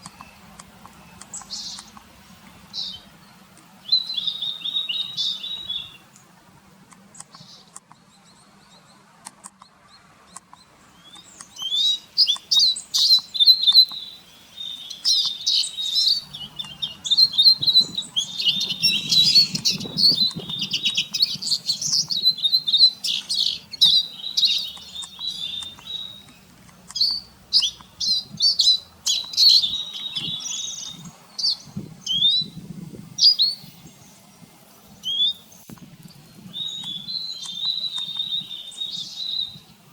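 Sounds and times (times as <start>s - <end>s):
birds twittering and trilling: 0.0s - 39.9s.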